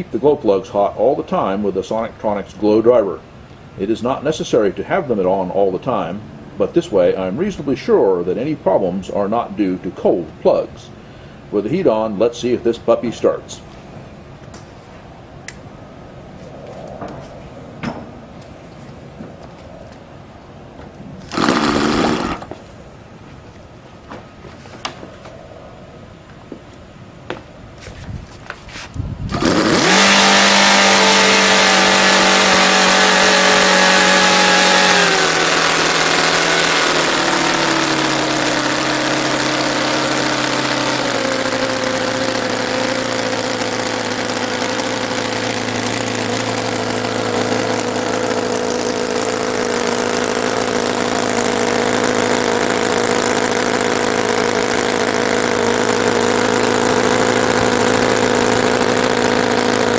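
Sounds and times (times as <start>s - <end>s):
model radial engine running: 21.3s - 22.6s, 29.3s - 59.9s.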